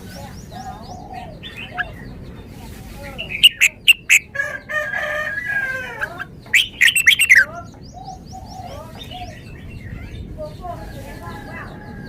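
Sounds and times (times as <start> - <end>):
bulbul calling sharp notes: 3.2 - 4.4, 6.0 - 7.5
rooster crowing: 4.2 - 6.3.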